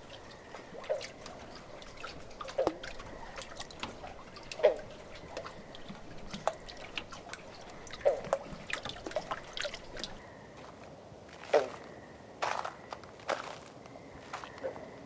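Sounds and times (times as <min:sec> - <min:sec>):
water dripping: 0:00.0 - 0:10.2.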